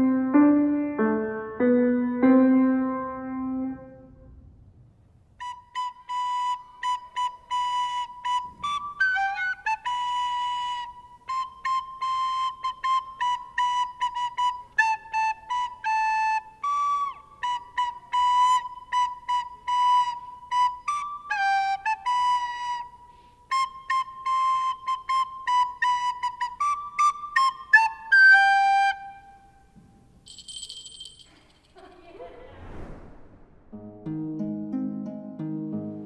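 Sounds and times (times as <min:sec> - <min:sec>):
solo flute playing: 0:05.4 - 0:29.8.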